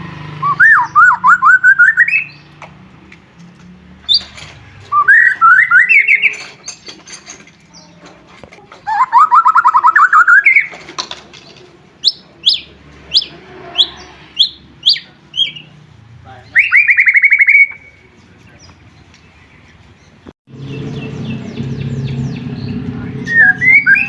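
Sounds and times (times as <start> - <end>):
bird singing trills and whistles: 0.4 - 2.5, 4.1 - 7.0, 8.8 - 10.8, 12.0 - 15.8, 16.4 - 18.8, 20.6 - 24.0.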